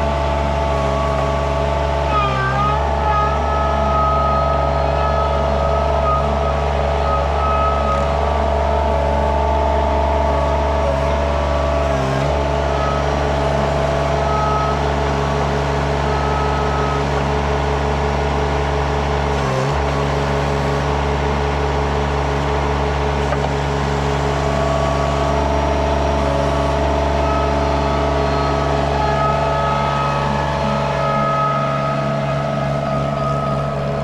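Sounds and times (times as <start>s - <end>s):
skid steer engine running: 0.0s - 34.0s.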